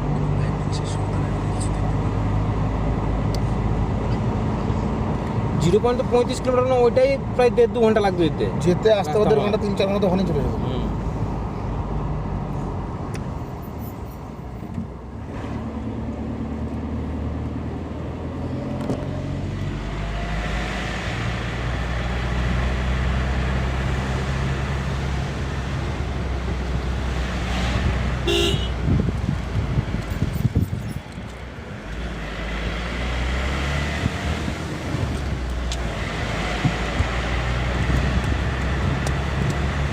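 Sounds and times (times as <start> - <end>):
car engine and road noise: 0.0 - 39.9
car horn toot: 28.2 - 28.8.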